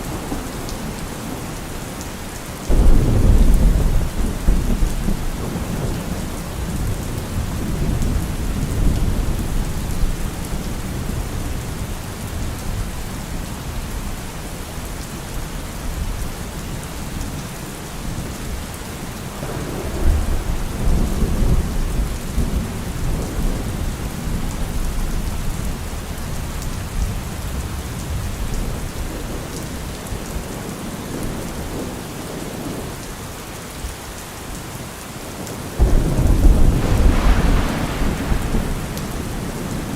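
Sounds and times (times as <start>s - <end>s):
thunder rumbling: 0.0s - 11.1s, 35.8s - 39.9s
steady rain falling: 0.0s - 39.9s.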